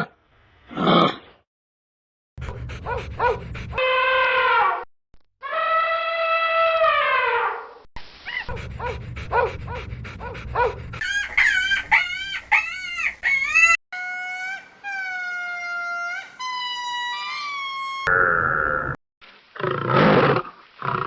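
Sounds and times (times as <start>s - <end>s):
animal cries: 8.5s - 18.0s.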